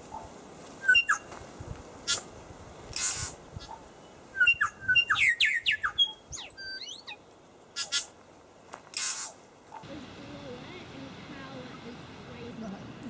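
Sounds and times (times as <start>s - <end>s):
songbird whistling notes: 0.8s - 1.3s, 4.3s - 7.2s
harsh rasping bird notes: 2.9s - 3.7s.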